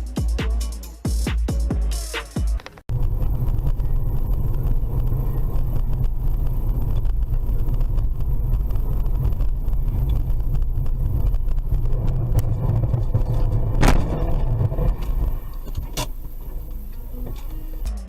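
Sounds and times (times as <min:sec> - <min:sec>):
electronic music: 0:00.0 - 0:02.8, 0:11.9 - 0:18.0
car road and engine rumble: 0:02.8 - 0:18.0.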